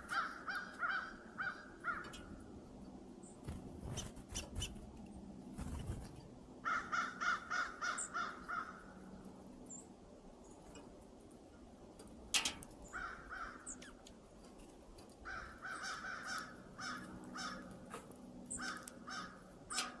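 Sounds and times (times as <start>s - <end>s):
bird making harsh calls: 6.6s - 8.8s.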